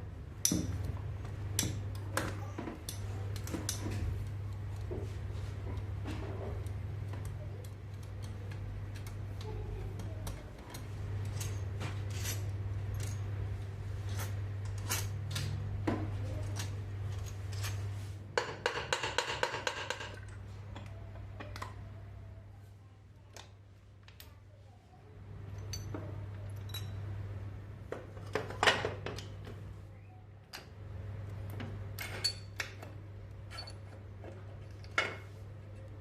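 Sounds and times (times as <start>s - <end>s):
metal tools clinking: 10.2s - 13.3s, 25.5s - 26.0s, 26.6s - 27.0s, 32.0s - 34.0s.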